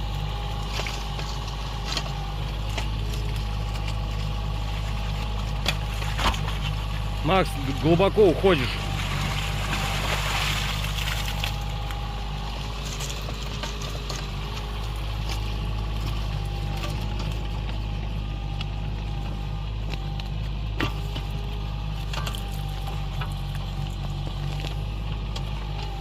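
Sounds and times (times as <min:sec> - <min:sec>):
excavator engine running: 0:00.0 - 0:26.0.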